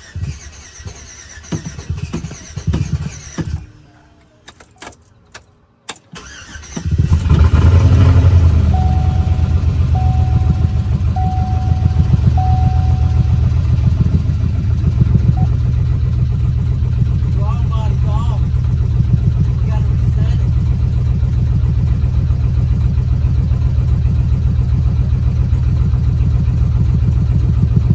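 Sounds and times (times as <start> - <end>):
car engine cranking and idling: 0.0 - 27.9
warning chime beeping: 7.9 - 15.8.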